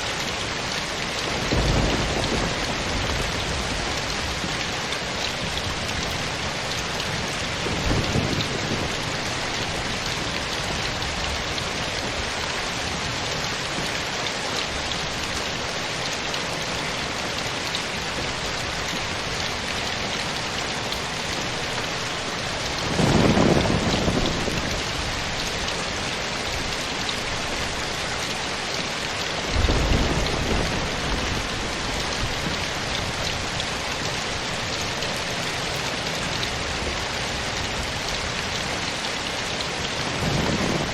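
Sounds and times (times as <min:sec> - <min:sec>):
steady rain falling: 0:00.0 - 0:40.9
low rumbles of thunder: 0:01.2 - 0:13.9, 0:22.5 - 0:27.8, 0:29.4 - 0:34.4, 0:40.0 - 0:40.9.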